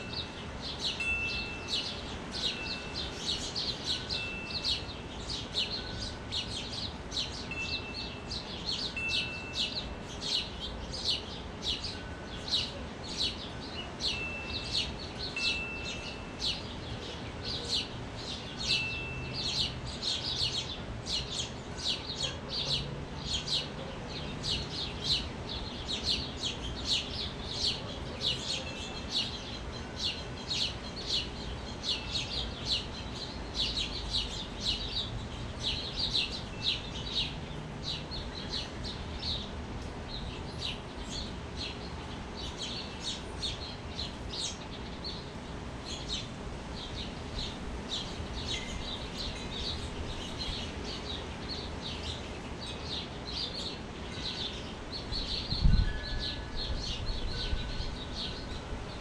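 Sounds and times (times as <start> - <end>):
small birds chirping: 0.0 - 59.0
wind chime ringing: 1.0 - 4.9, 5.7 - 6.6, 7.5 - 10.0, 14.1 - 16.7, 18.7 - 19.4.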